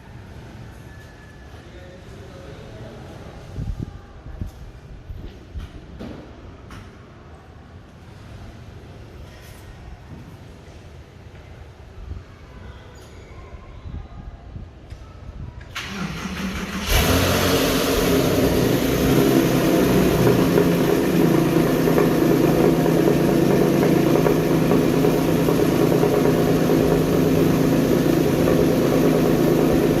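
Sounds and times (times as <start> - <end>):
car engine cranking: 15.7 - 30.0
car engine idling: 15.8 - 30.0.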